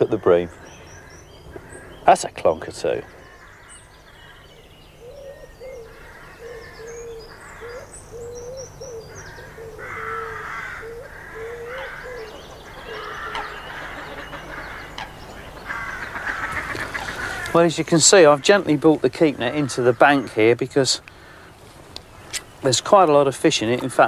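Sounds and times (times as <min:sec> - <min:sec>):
small birds chirping: 0:00.0 - 0:24.0
low cooing bird call: 0:03.0 - 0:17.6.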